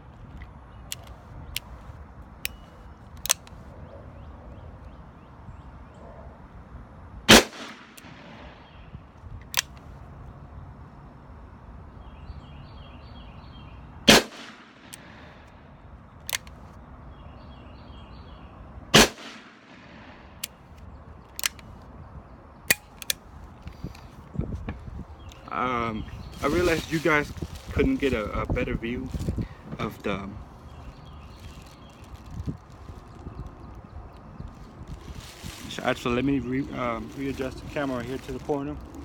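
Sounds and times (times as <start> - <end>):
revolver shots with echo: 7.3 - 8.7, 14.1 - 15.2, 19.0 - 20.2.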